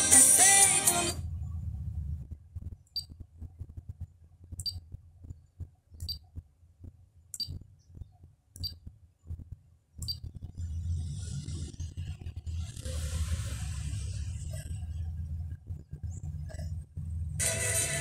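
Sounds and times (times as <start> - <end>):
faint low rumble: 1.1 - 18.0
disc drive hiss and hum: 7.4 - 18.0.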